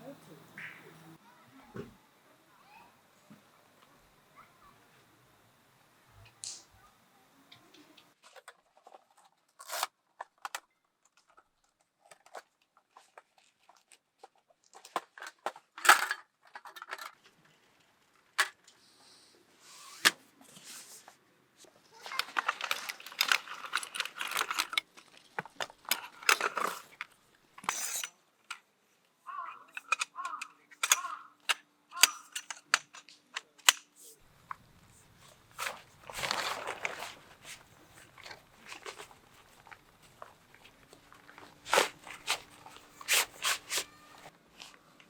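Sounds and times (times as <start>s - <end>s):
crinkling and tearing: 21.9s - 27.7s, 35.2s - 44.8s
handling clicks: 29.7s - 33.9s.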